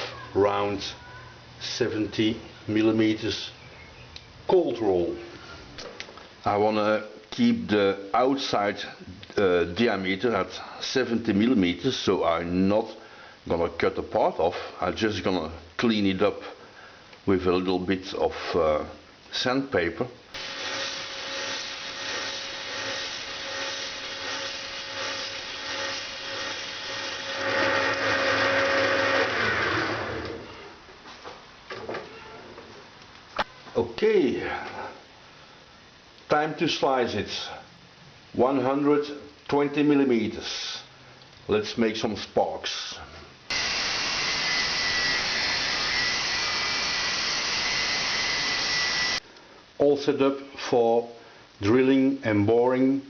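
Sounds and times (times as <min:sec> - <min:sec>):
cut-off disc grinding steel: 0:20.4 - 0:30.4, 0:43.5 - 0:49.2
lathe motor humming: 0:20.4 - 0:30.4, 0:43.5 - 0:49.2
lathe spinning down: 0:20.4 - 0:30.4, 0:43.5 - 0:49.2
sandpaper rubbing spinning metal: 0:20.5 - 0:28.2.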